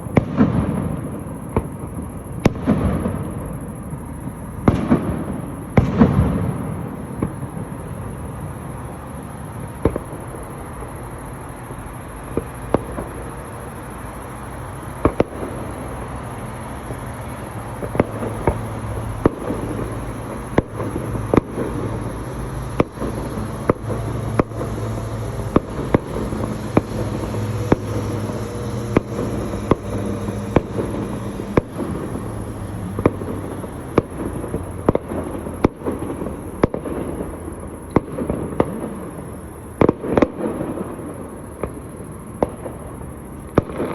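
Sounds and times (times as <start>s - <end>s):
steady rumble: 0.0s - 39.3s
sharp firework bangs: 0.0s - 43.9s
firework boom: 4.6s - 8.3s.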